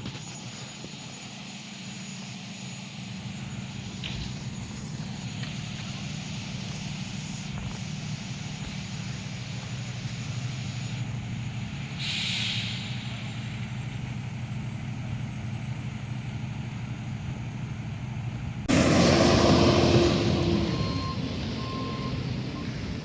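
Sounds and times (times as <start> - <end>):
heavy vehicle engine idling: 0.0 - 23.0
hissing air burst: 12.0 - 13.4.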